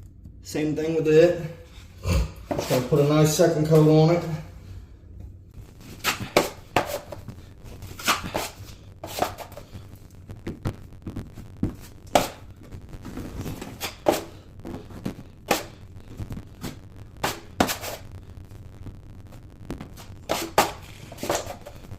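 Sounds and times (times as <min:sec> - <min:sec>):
drywall knife scraping compound: 0:06.0 - 0:07.2, 0:08.0 - 0:09.6, 0:17.2 - 0:18.0, 0:20.3 - 0:21.8.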